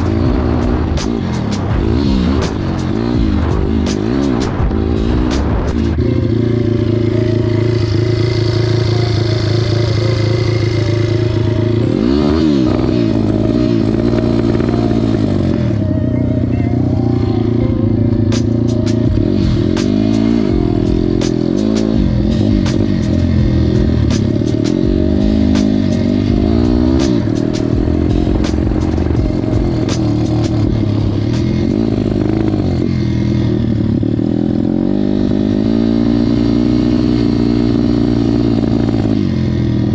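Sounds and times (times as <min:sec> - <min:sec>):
motocross engine revving: 0:00.0 - 0:39.9
sharp clicks: 0:25.4 - 0:31.8.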